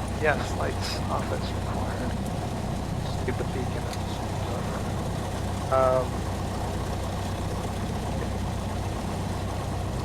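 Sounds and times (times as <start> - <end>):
aircraft engine idling: 0.0 - 10.0.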